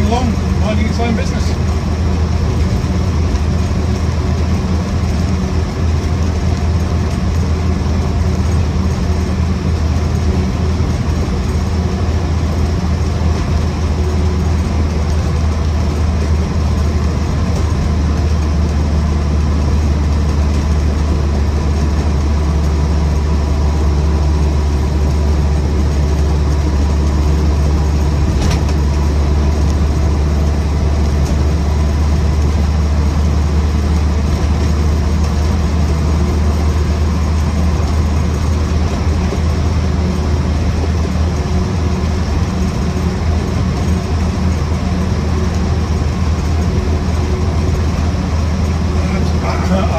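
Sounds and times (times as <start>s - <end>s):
car engine droning at cruise: 0.0s - 49.9s.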